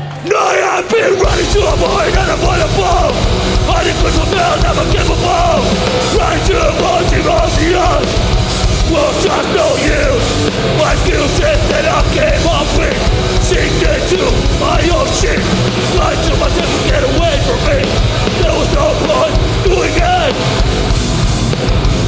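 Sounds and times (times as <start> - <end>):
distorted guitars: 0.0 - 22.0
drums: 0.0 - 22.0
bass guitar: 1.2 - 22.0.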